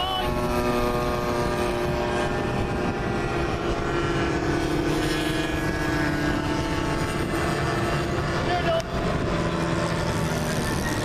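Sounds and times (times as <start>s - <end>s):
model plane propeller engine: 0.0s - 11.0s.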